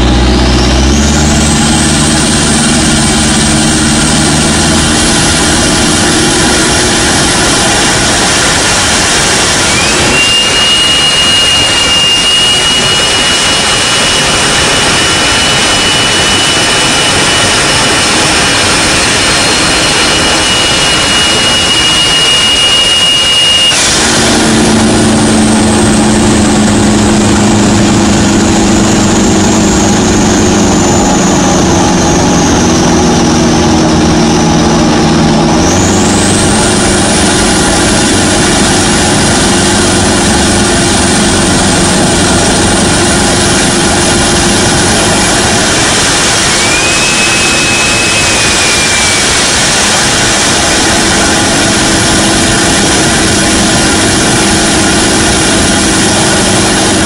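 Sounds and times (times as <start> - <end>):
diesel engine pulling hard: 0.0 - 57.0
high whistle: 7.4 - 25.6, 45.0 - 52.4.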